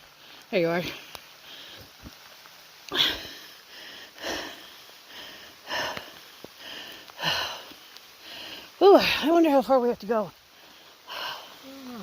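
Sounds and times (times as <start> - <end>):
person breathing hard: 2.9 - 8.8, 10.5 - 12.0.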